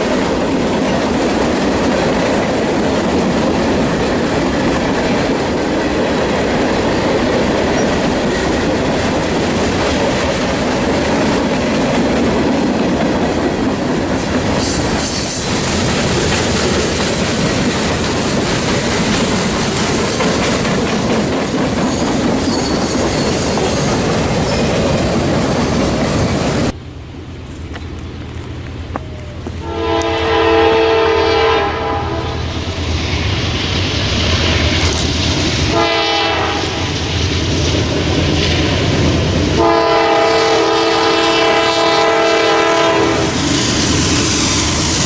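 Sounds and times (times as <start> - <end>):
train wheels clattering over rail joints: 0.0 - 26.8
high wheel squeal: 14.5 - 15.8, 21.8 - 25.0.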